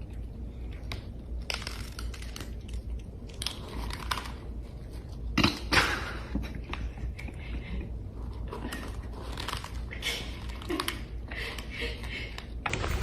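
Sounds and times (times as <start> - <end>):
crunching and crackling: 0.1 - 5.6, 12.4 - 13.0
steady low hum: 12.2 - 13.0.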